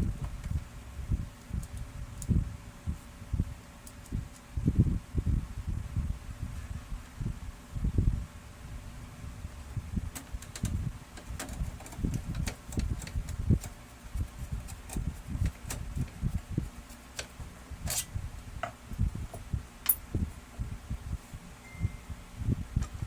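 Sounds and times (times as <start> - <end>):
parts knocking and clicking: 10.1 - 16.2, 18.6 - 20.0.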